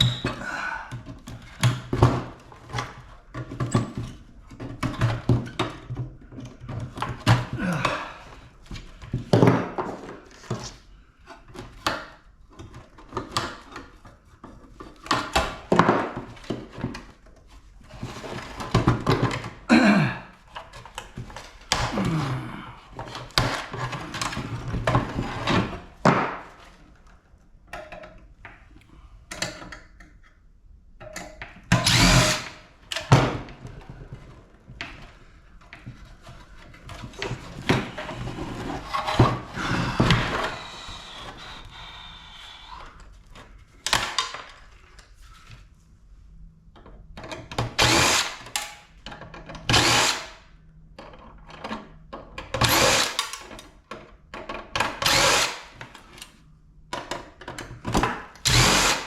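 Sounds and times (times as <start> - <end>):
power drill running: 31.8 - 32.6, 40.3 - 42.7, 47.8 - 48.5, 49.7 - 50.4, 52.6 - 53.2, 55.0 - 55.8, 58.4 - 59.0.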